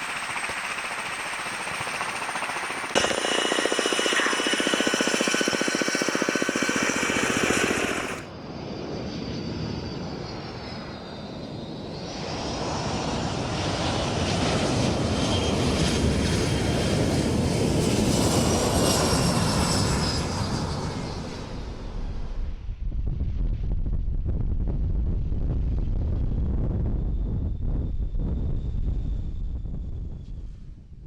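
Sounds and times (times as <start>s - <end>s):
rapid buzzing engine drone: 0.0s - 8.3s.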